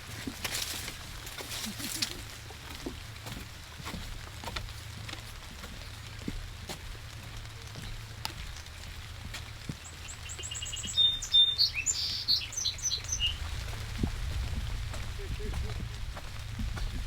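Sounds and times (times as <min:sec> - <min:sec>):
raindrops pattering: 0:00.0 - 0:17.0
songbird singing: 0:07.4 - 0:17.0.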